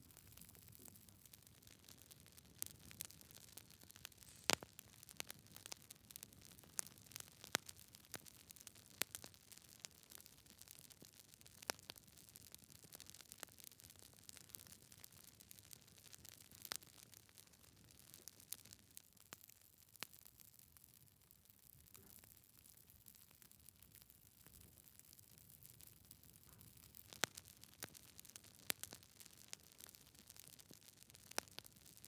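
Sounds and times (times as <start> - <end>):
faint fire hiss: 0.0 - 9.9
wood fire crackling and popping: 0.0 - 20.6, 22.6 - 32.0.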